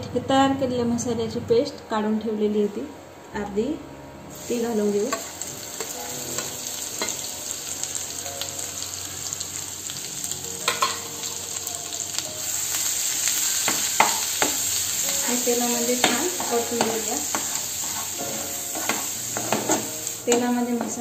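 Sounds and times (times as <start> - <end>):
paste sizzling in hot oil: 4.3 - 21.0
steel spoon scraping a pan: 13.2 - 20.9.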